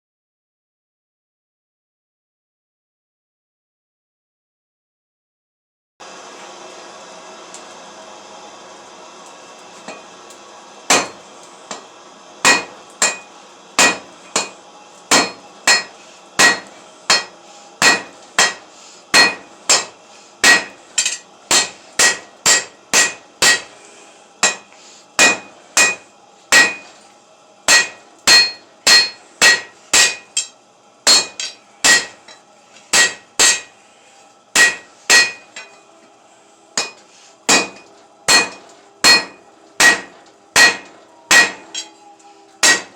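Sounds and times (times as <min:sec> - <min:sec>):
hammer on anvil: 0:10.9 - 0:11.8, 0:12.4 - 0:23.8, 0:24.4 - 0:26.9, 0:27.7 - 0:33.8, 0:34.5 - 0:35.8, 0:36.8 - 0:42.0, 0:42.6 - 0:42.9.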